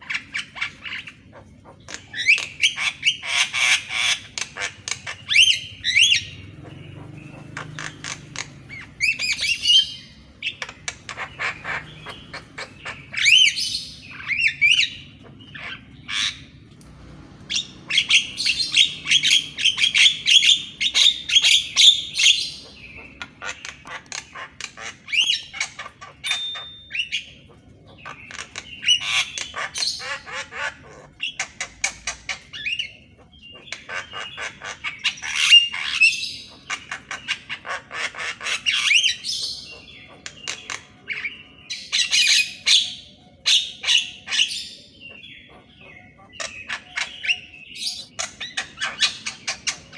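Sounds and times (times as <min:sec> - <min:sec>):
bird singing harsh chatter: 0:00.0 - 0:49.9.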